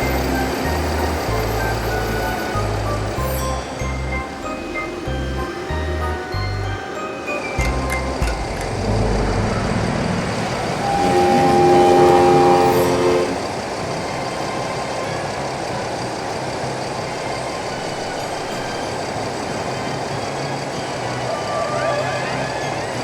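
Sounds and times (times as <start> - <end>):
engine rumble: 0.0 - 23.0
chord horn blast: 8.4 - 15.6.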